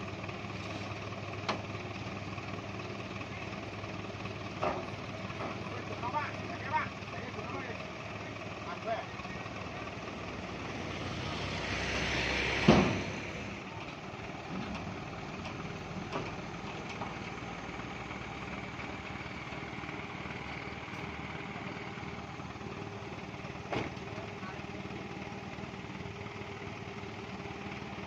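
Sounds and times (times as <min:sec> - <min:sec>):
traffic noise: 0:00.0 - 0:28.0
vehicle passing close by: 0:10.5 - 0:13.6.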